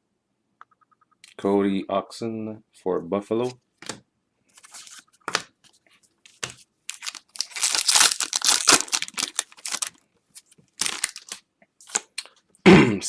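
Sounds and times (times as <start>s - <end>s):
foil wrapper crinkling: 6.4s - 12.4s
foil wrapper tearing: 6.9s - 10.0s, 10.8s - 12.1s.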